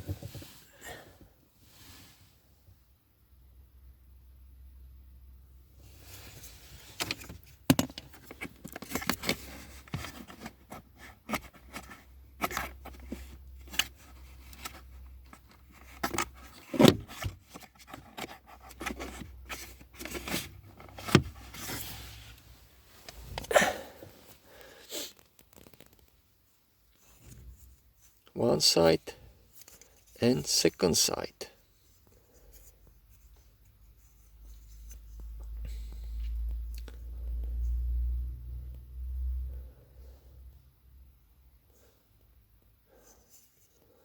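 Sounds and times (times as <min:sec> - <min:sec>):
plastic parts clicking and scraping: 0:06.9 - 0:21.9, 0:25.1 - 0:26.2.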